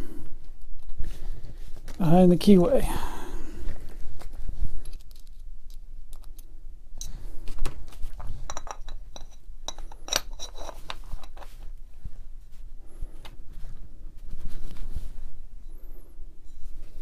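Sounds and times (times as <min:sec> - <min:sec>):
metal parts clicking and clinking: 0:08.5 - 0:11.5.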